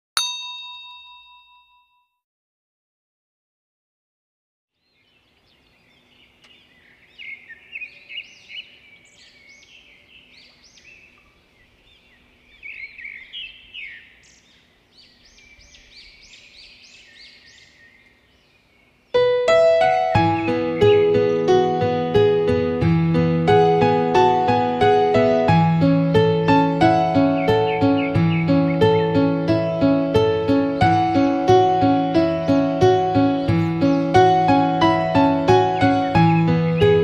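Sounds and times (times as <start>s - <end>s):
birds chirping and twittering: 4.8s - 22.3s, 26.2s - 37.0s
piano music: 19.2s - 37.0s.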